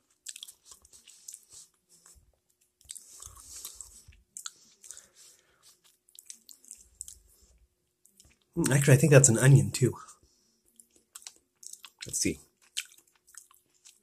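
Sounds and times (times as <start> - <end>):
person chewing food: 0.0 - 8.6, 10.3 - 14.0
wet mouth clicks: 10.8 - 12.1.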